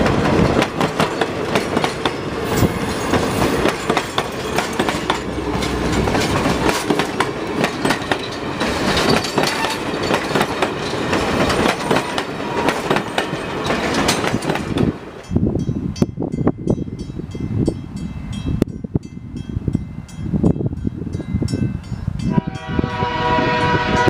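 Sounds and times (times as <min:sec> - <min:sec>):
train wheels clacking: 0:00.0 - 0:15.0
train rumble: 0:00.0 - 0:24.0.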